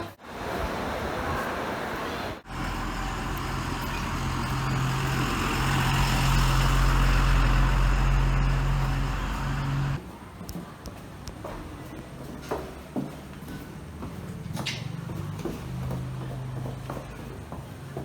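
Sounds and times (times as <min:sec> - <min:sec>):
heavy vehicle engine running: 0:02.4 - 0:10.0.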